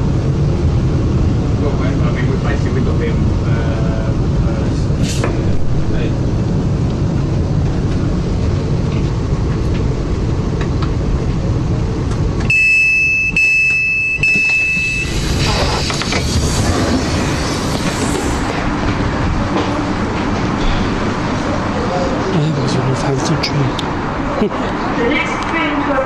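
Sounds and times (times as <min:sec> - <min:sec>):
train rumbling: 0:00.0 - 0:26.0
high electronic beep: 0:12.5 - 0:15.2.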